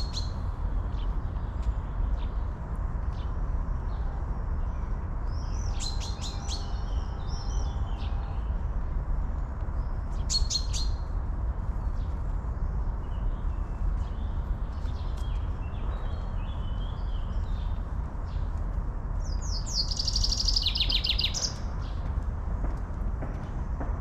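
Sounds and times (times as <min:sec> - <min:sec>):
steady low rumble: 0:00.0 - 0:06.0, 0:06.6 - 0:24.0
songbirds chirping and singing: 0:11.8 - 0:22.1.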